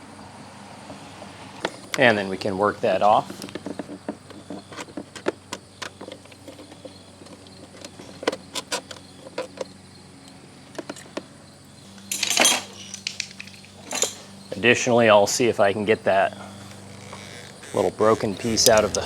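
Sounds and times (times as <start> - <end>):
small plastic and metal clicks: 12.0 - 14.1, 17.1 - 19.0.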